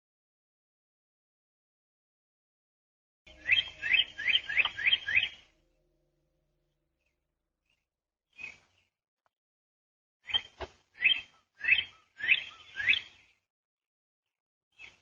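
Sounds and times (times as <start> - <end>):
bird chirping: 3.3 - 8.9, 10.2 - 13.4, 14.7 - 15.0.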